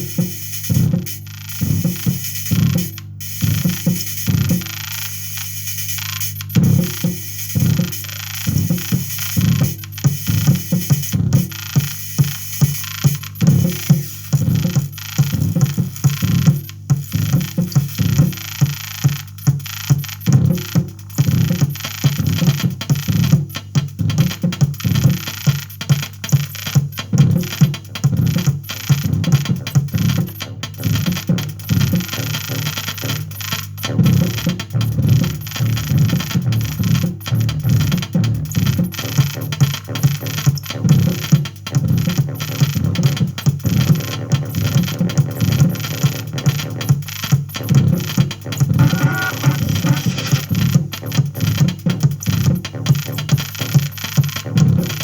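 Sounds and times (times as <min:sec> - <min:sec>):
hiss: 0:10.2 - 0:13.3
irregular low electronic pulsing: 0:34.0 - 0:38.9
steady electronic hum: 0:34.2 - 0:38.6
pulsing electronic tones: 0:48.8 - 0:50.4
crackling clicks: 0:48.8 - 0:50.5.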